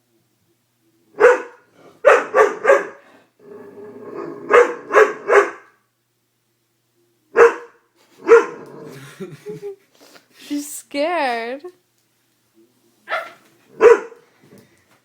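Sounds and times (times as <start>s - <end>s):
dog barking: 1.2s - 3.0s, 4.5s - 5.8s, 7.4s - 8.6s, 13.1s - 14.2s.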